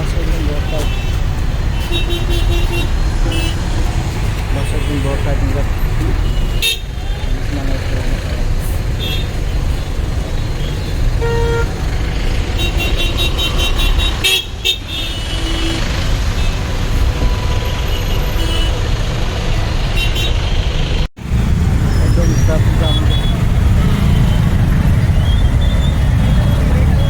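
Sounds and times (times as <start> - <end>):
vehicle horns honking: 0.0 - 3.8, 4.5 - 7.5, 9.0 - 9.4, 10.6 - 11.9, 12.5 - 18.9, 19.9 - 21.1, 22.1 - 27.0
road traffic rumble: 0.0 - 27.0
high-pitched horn beeping: 11.2 - 11.8.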